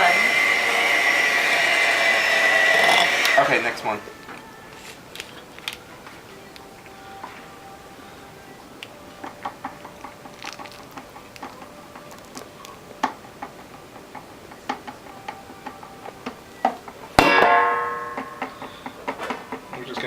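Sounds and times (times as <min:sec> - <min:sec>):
utensils tapping a bowl: 0:09.1 - 0:20.0
acoustic guitar strum: 0:16.8 - 0:20.0.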